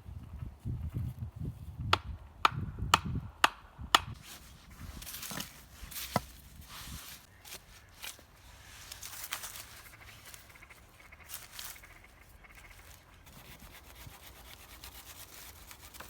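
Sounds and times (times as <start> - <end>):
wood chopping strikes: 5.0 - 6.5.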